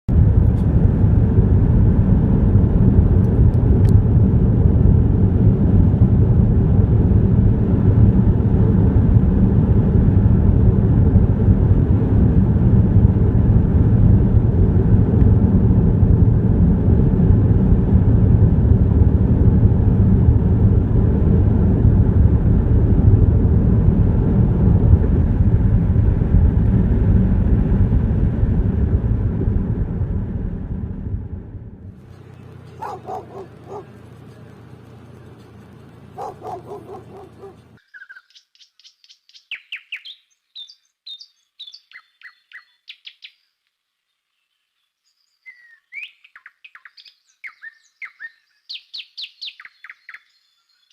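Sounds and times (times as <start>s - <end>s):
low rumble with hum: 0.1s - 37.8s.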